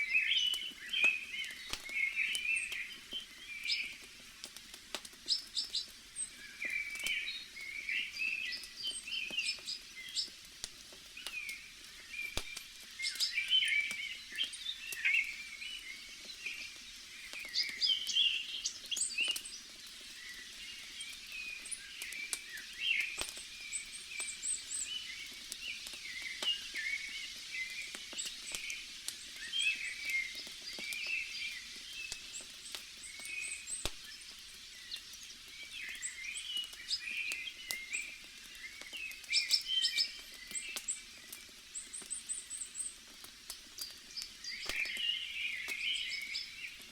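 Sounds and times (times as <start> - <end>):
forest ambience: 0.0 - 10.4, 11.1 - 46.9
wood fire crackling: 0.0 - 46.9
birds chirping: 11.2 - 43.0, 43.8 - 46.9.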